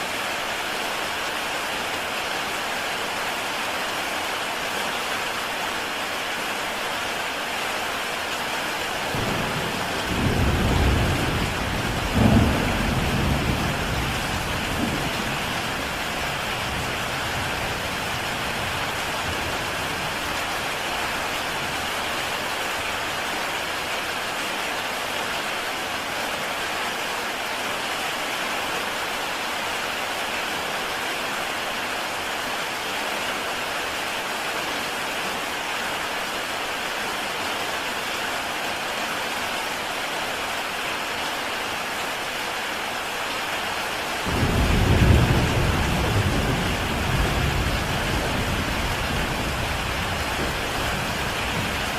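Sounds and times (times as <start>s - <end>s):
heavy rain on a tile roof: 0.0s - 51.9s
thunder rumbling: 9.1s - 20.4s, 44.2s - 51.9s.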